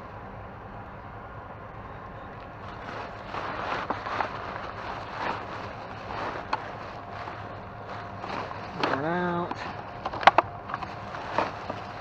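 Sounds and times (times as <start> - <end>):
steady background hum: 0.0 - 12.0
trash bag rustling: 2.4 - 12.0.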